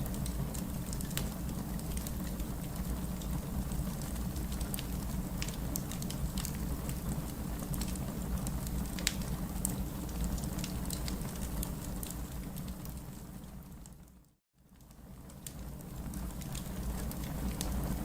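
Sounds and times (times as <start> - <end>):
wood fire crackling: 0.0 - 14.1, 14.7 - 18.0.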